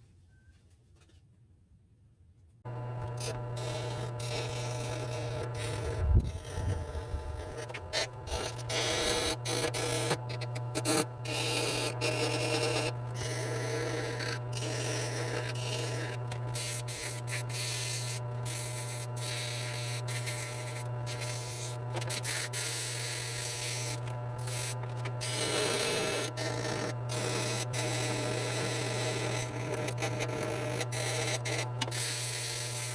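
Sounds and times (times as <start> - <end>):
steady low hum: 2.7 - 28.7
rubbing and scraping strokes: 3.1 - 25.8.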